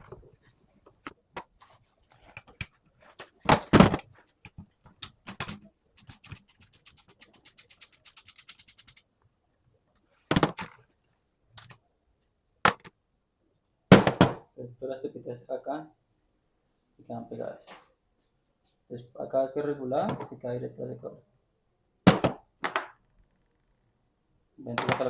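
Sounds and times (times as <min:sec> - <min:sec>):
ratchet wrench clicking: 0:06.0 - 0:09.0.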